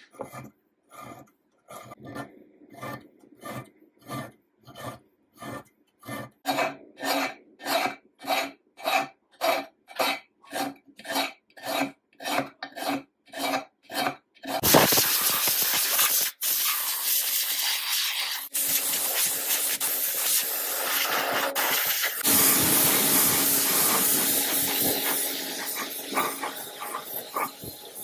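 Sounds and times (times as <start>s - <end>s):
rasping hand abrading strokes: 0.0s - 16.3s, 17.3s - 28.0s
spray hissing: 14.6s - 28.0s.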